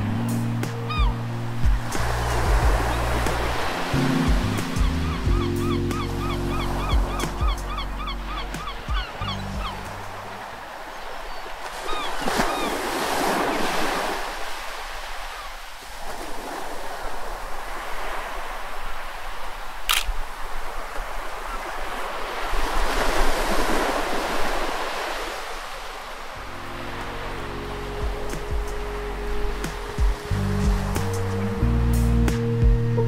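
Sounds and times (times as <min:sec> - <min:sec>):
surf breaking on beach: 0:01.7 - 0:04.8
sharp click: 0:19.9 - 0:20.2.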